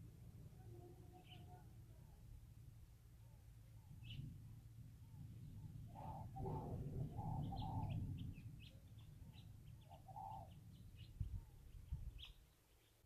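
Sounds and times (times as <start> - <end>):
faint low rumble: 0.0 - 12.9
birds chirping: 1.0 - 2.3, 3.2 - 13.0
lower bird calls: 5.0 - 13.0.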